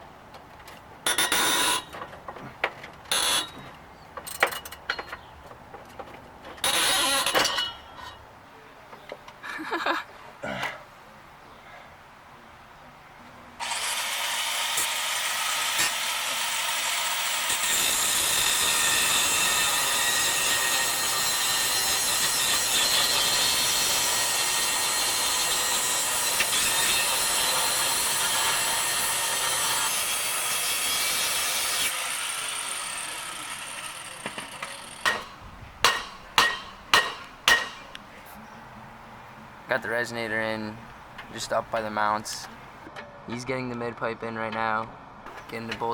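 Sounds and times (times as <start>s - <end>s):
sharp metal knocks: 1.0s - 2.1s, 34.2s - 37.9s
power saw cutting metal pipe: 1.1s - 1.9s, 3.1s - 3.6s, 6.6s - 7.6s, 13.6s - 37.8s.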